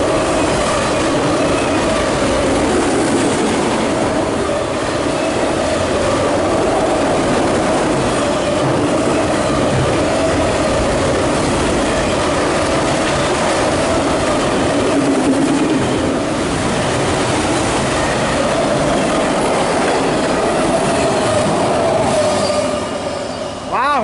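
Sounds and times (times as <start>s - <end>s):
train wheel and rail noise: 0.0s - 24.0s
high wheel squeal: 21.0s - 23.8s.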